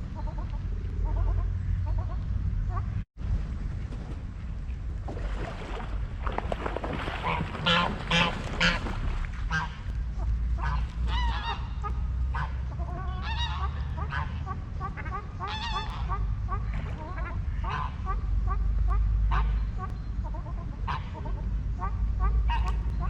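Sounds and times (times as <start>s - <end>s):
steady low rumble: 0.0s - 23.0s
geese honking: 7.2s - 23.0s.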